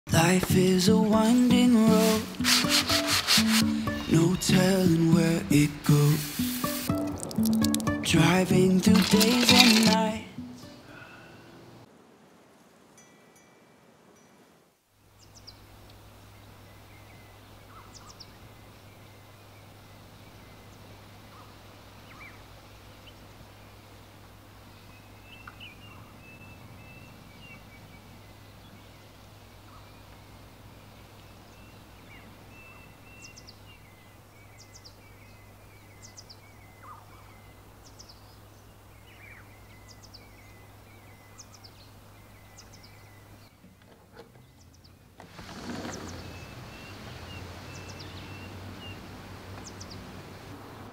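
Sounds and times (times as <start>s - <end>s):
small birds chirping and trilling: 15.1s - 50.9s.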